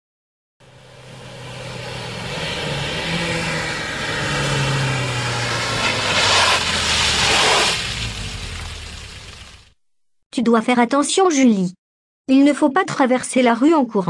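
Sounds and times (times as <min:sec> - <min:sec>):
car engine revving: 0:00.6 - 0:09.8
car pulling away: 0:00.6 - 0:09.8.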